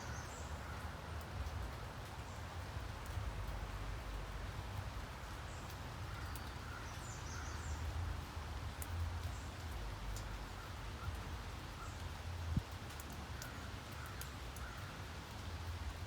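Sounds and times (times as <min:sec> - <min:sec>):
sharp drip ticks: 0:00.0 - 0:16.0
steady rain hiss: 0:00.0 - 0:16.0.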